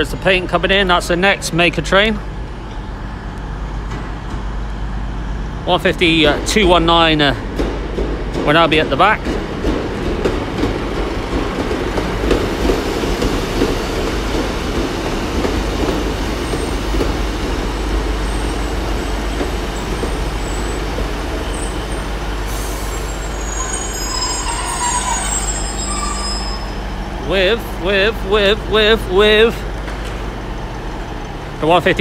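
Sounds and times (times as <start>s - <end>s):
diesel train passing: 0.0s - 32.0s
wheels squealing: 17.6s - 27.4s.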